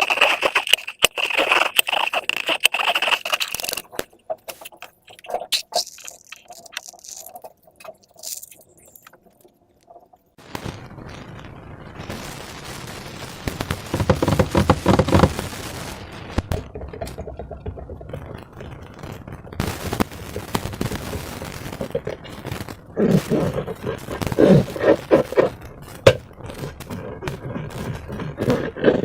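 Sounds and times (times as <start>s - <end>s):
slime crackling and popping: 0.0s - 12.3s, 13.1s - 29.0s.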